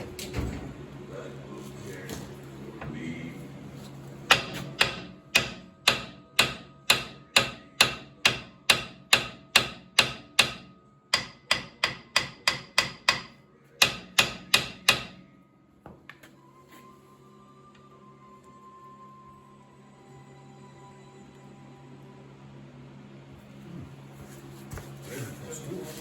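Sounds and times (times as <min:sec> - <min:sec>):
hammer striking metal: 0:04.3 - 0:15.3.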